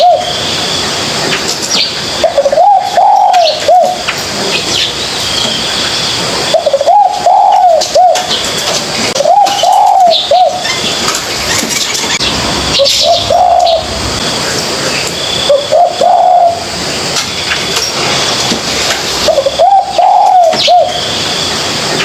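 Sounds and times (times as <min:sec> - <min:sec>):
dove cooing: 0:00.0 - 0:00.4, 0:02.2 - 0:04.1, 0:06.5 - 0:14.6, 0:15.4 - 0:16.8, 0:19.2 - 0:21.0
small birds chirping: 0:00.0 - 0:18.4, 0:19.2 - 0:21.5.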